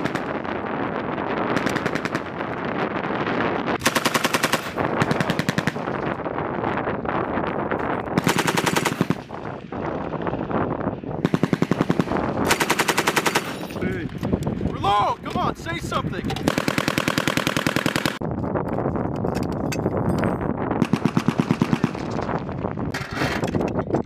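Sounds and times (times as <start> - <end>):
machine gun bursts: 3.8 - 5.8, 16.4 - 18.2.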